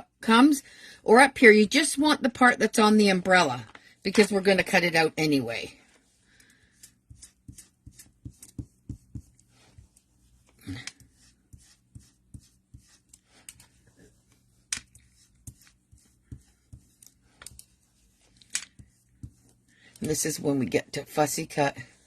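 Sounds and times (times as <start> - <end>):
light rubbing of paper: 5.8 - 19.6.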